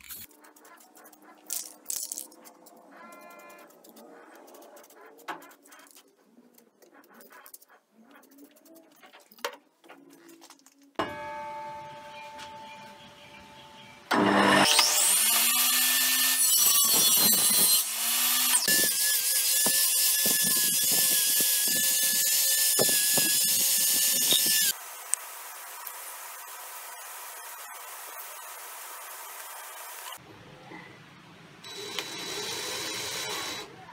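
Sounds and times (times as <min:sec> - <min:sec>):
power tool motor whining: 0:14.1 - 0:24.8.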